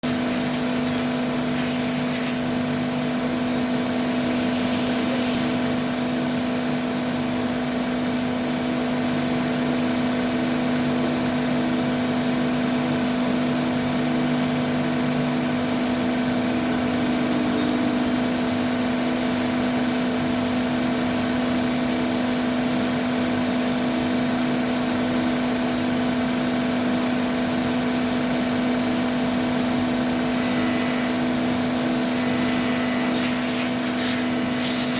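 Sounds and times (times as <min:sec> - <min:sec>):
lathe humming: 0:15.9 - 0:20.2, 0:29.7 - 0:33.5.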